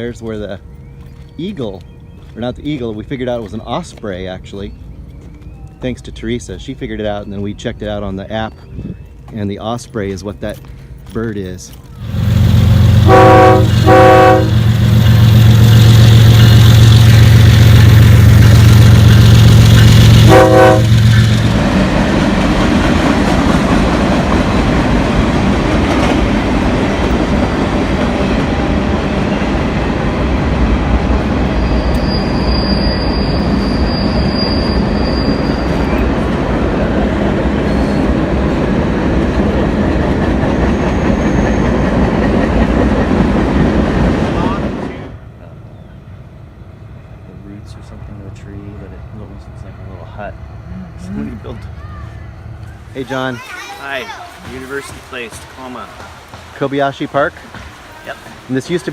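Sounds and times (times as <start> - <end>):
rumble and clatter of train cars: 0.0 - 58.9
loud low locomotive drone: 11.8 - 53.3
locomotive horn blasts: 12.8 - 14.8, 20.1 - 21.3.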